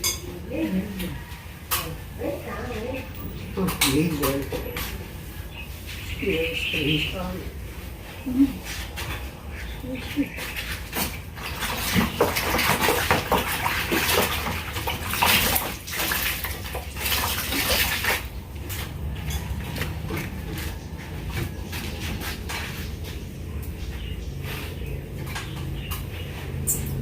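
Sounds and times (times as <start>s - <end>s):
water spraying and splashing: 10.1s - 23.2s.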